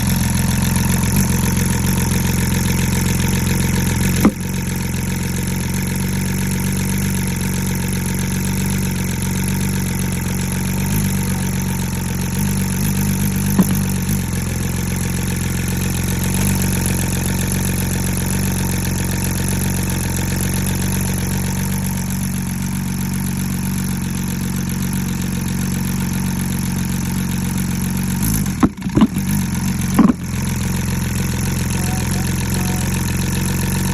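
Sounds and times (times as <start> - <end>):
engine pops: 0.0 - 4.8, 10.8 - 14.5, 28.1 - 33.9
car engine idling with misfire: 0.0 - 33.9.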